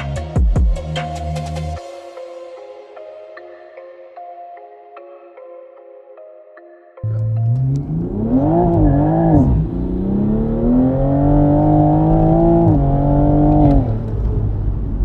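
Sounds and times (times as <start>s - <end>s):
car engine accelerating: 7.0s - 15.0s.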